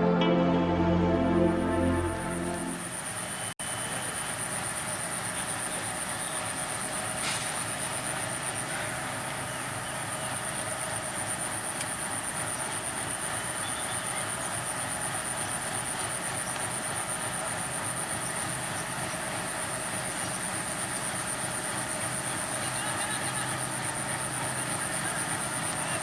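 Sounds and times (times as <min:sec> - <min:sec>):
pulsing high whine: 0:00.0 - 0:03.4
diesel locomotive engine drone: 0:00.0 - 0:05.0.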